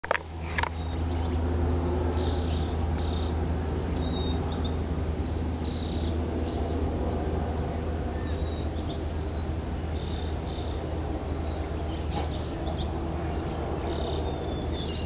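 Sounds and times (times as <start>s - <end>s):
steady low hum: 0.1s - 15.0s
birds chirping: 0.4s - 15.0s.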